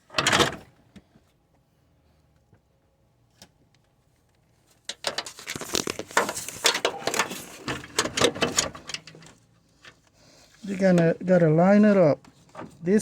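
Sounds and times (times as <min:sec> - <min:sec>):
fan parts clicking and scraping: 0:04.7 - 0:13.0.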